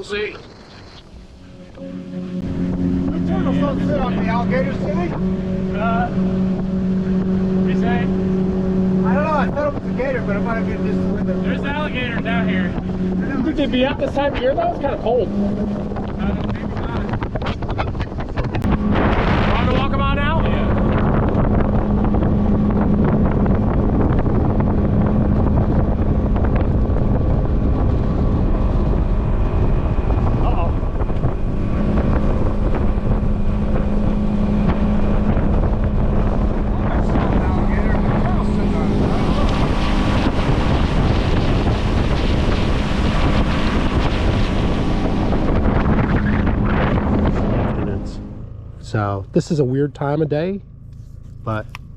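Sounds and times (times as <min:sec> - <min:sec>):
water rushing past hull: 0:00.0 - 0:49.4
wind buffeting the microphone: 0:00.0 - 0:50.5
boat motor running: 0:00.0 - 0:51.9.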